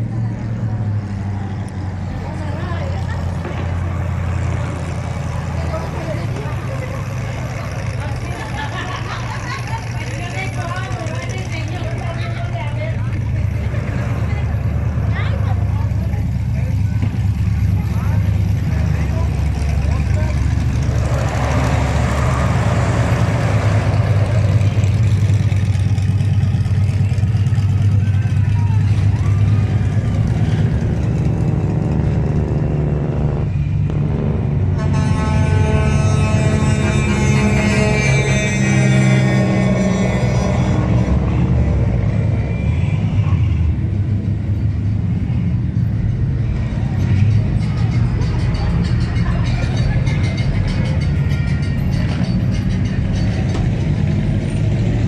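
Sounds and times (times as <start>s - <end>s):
truck engine droning: 0.0s - 55.0s
rushing noise: 28.8s - 48.4s.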